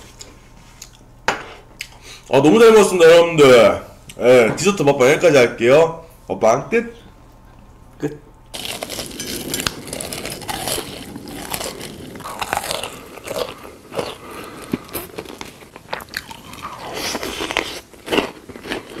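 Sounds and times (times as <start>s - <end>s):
crunchy food chewing: 8.5s - 19.0s.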